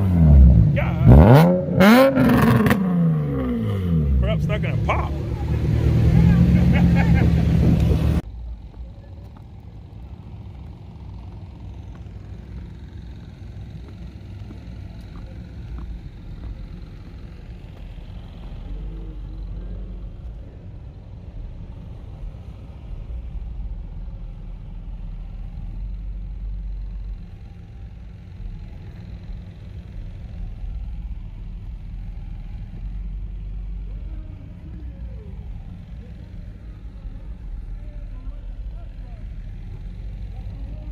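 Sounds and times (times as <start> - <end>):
vehicle engines idling: 0.0 - 40.9
faint voices: 33.0 - 40.9.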